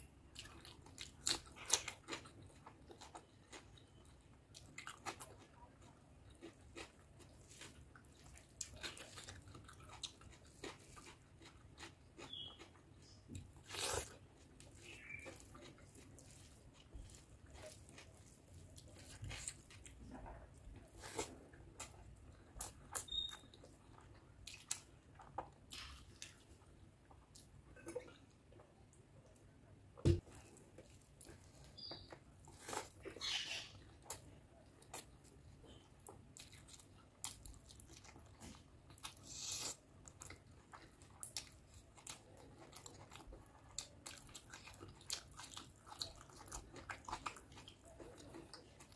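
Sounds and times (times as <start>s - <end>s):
wet mouth clicks and chewing: 4.6s - 20.0s, 21.1s - 28.2s.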